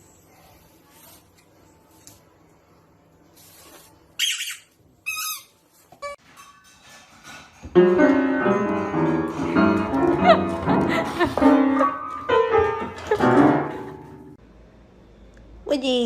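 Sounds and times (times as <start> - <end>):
piano music: 7.7 - 14.4.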